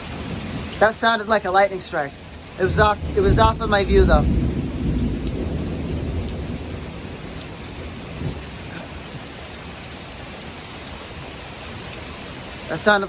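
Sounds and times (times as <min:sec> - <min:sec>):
thunder rumble: 0:00.0 - 0:10.3
torrential rain: 0:00.0 - 0:13.0.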